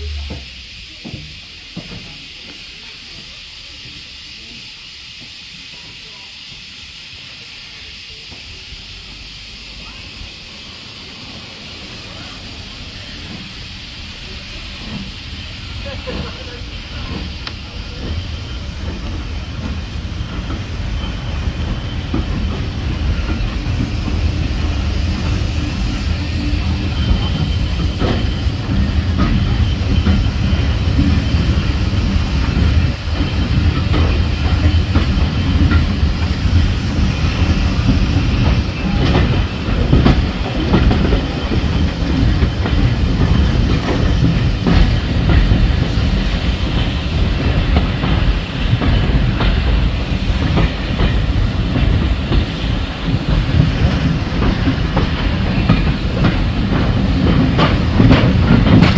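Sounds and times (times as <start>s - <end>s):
train coaches rumbling: 0.0s - 58.9s
wheels clicking over rail joints: 12.0s - 58.9s.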